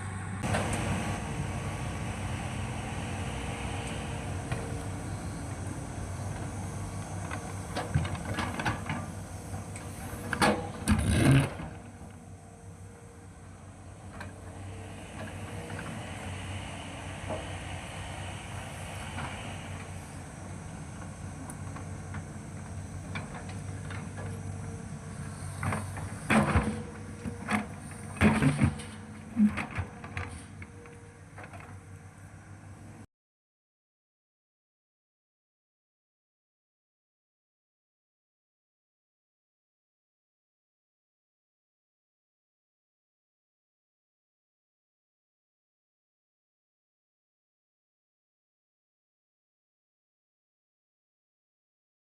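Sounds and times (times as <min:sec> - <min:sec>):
excavator diesel engine running: 0:00.0 - 0:33.0
loud clattering scrapes: 0:25.3 - 0:30.6.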